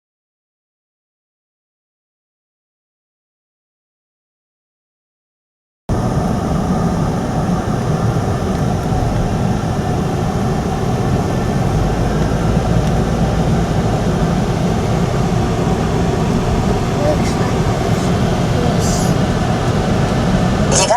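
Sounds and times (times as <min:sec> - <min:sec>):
car road and engine noise: 0:05.9 - 0:20.9.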